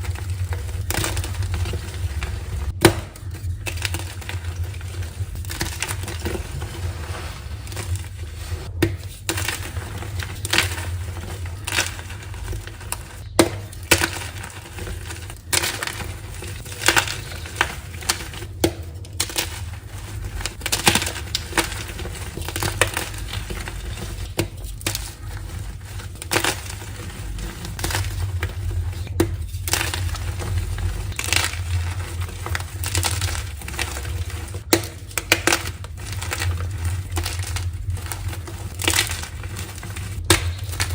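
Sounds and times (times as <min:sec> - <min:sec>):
chalk crunching and crackling: 0:00.0 - 0:40.9
steady low hum: 0:00.0 - 0:40.9.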